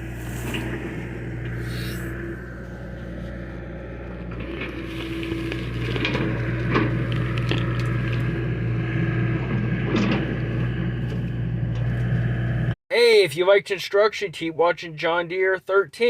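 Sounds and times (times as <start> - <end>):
excavator diesel engine running: 0.0 - 12.8
crunching and cracking knocks: 2.6 - 8.6.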